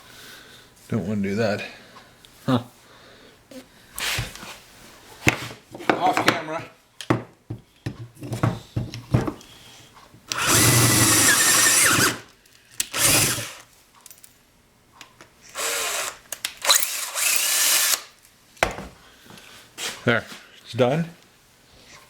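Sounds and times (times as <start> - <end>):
power tool cutting metal: 10.4 - 12.2, 13.0 - 13.6, 15.6 - 18.1.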